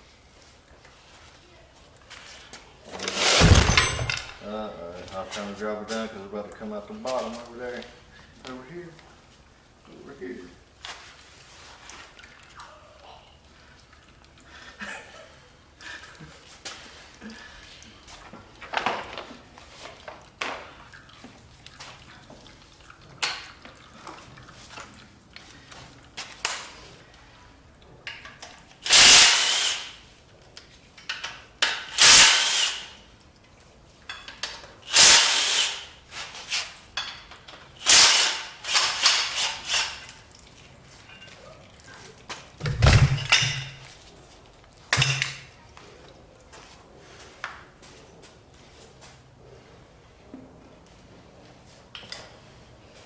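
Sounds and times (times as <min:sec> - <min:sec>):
power tool bursts: 0:03.0 - 0:04.4, 0:28.9 - 0:30.0, 0:31.9 - 0:33.0, 0:34.9 - 0:35.9, 0:37.8 - 0:39.9.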